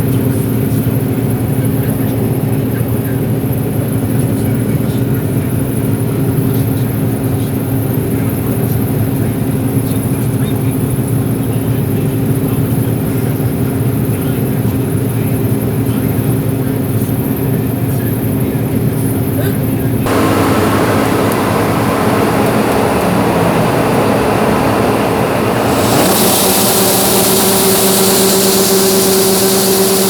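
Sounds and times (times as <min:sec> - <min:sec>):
combine engine and threshing drone: 0:20.1 - 0:30.0
steady low hum: 0:20.1 - 0:30.0.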